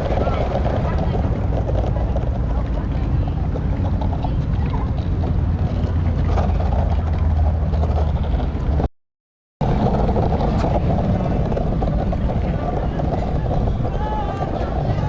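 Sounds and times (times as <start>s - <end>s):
longboard wheels rolling on pavement: 0.0s - 8.9s, 9.6s - 15.0s
wind on microphone: 9.6s - 15.0s.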